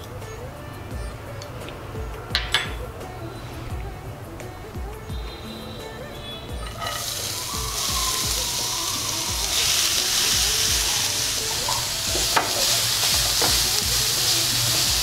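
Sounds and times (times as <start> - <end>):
carrot sizzling in hot fat: 6.6 - 15.0.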